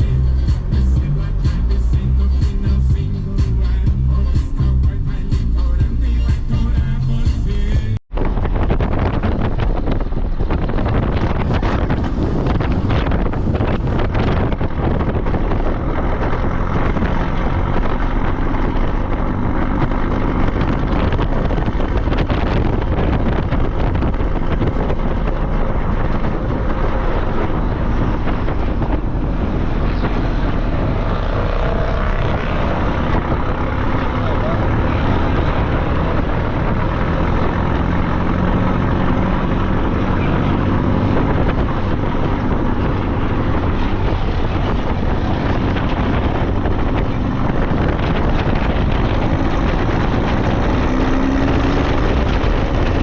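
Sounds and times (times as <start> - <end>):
vehicle engine running: 0.0 - 53.0
wind buffeting microphone: 7.9 - 53.0
vehicle knocks and jolts: 41.1 - 53.0.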